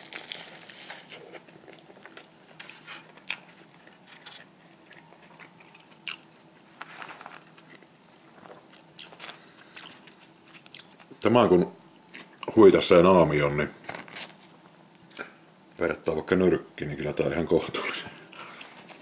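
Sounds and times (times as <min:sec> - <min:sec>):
person chewing burger: 0:00.0 - 0:11.2.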